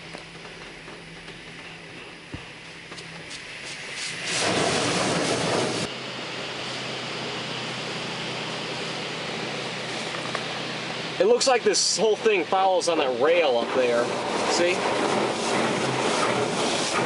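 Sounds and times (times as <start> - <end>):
high-pressure water spray hitting car: 3.3 - 5.9, 13.4 - 17.0.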